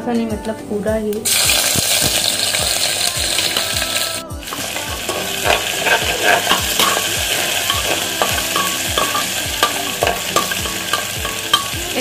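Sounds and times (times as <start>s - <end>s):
seeds sizzling in hot oil: 1.2s - 12.0s
metal spatula scraping a pan: 3.4s - 12.0s.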